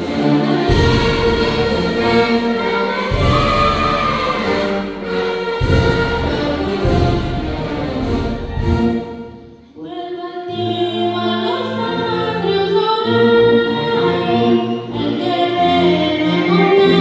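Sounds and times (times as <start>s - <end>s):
choir singing with orchestra: 0.0s - 17.0s.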